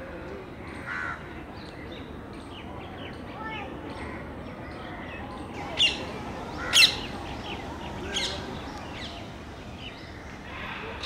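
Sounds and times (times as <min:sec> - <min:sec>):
faint birds chirping: 0:00.6 - 0:11.0
sharp bird calls: 0:05.5 - 0:11.0.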